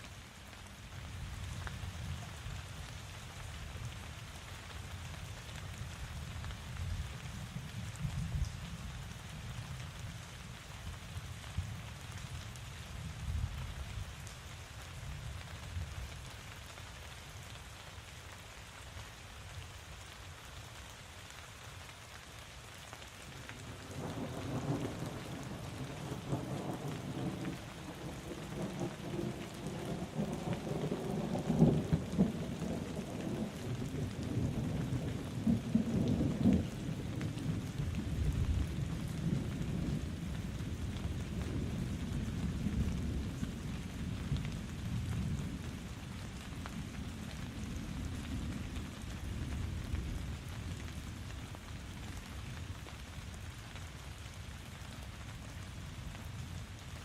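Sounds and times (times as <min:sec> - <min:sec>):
steady rain falling: 0:00.0 - 0:57.0
thunder rumbling: 0:23.6 - 0:45.9.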